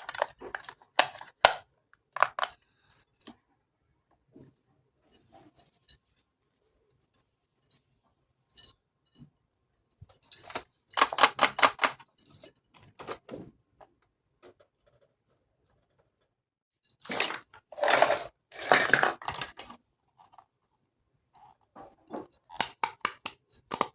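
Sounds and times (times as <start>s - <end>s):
toy kitchenware clicking: 0.0s - 1.6s, 2.2s - 2.6s, 10.5s - 12.0s, 17.1s - 19.7s, 22.5s - 23.9s
toy kitchenware clinking rattles: 0.0s - 1.6s, 2.2s - 2.6s, 10.4s - 13.3s, 17.0s - 19.7s, 22.4s - 23.9s.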